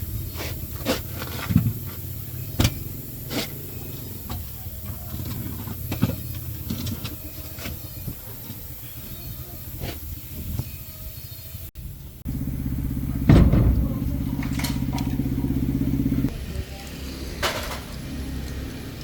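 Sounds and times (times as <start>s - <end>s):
low engine hum: 0.0s - 19.0s
metal knocking on metal: 13.1s - 16.3s.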